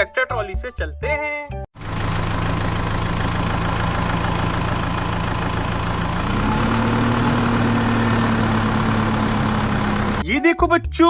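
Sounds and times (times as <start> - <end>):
tractor engine running: 1.8 - 10.2.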